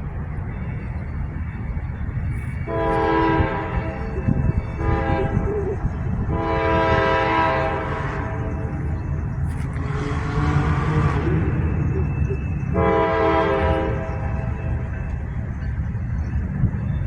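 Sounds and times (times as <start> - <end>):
freight train rumbling: 0.0 - 17.0
locomotive air horn blasts: 2.7 - 5.5, 6.3 - 8.9, 9.8 - 11.6, 12.7 - 14.8.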